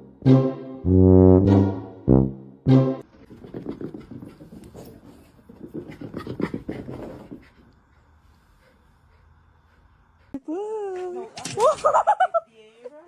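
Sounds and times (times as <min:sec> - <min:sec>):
short loud horn-like note: 0:00.2 - 0:03.0
dog panting: 0:03.2 - 0:10.4.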